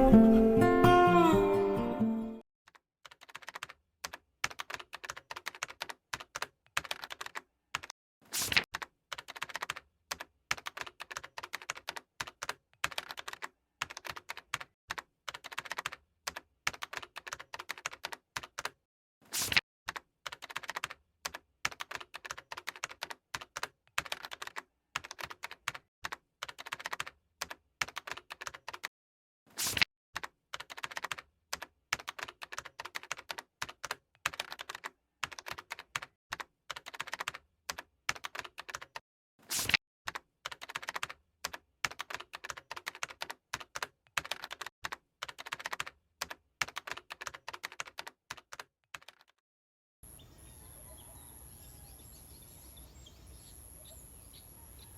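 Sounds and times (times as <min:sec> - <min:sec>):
keyboard typing: 0:02.7 - 0:18.8, 0:19.9 - 0:28.9, 0:30.2 - 0:39.0, 0:40.1 - 0:49.4.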